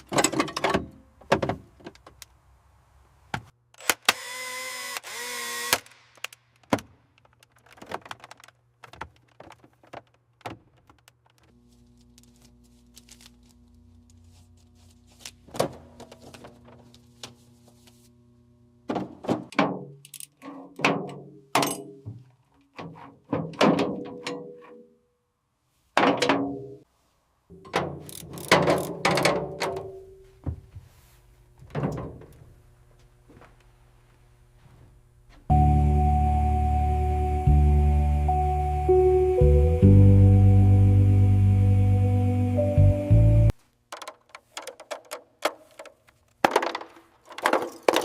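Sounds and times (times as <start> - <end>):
low steady hum: 11.6 - 19.5, 29.6 - 43.6.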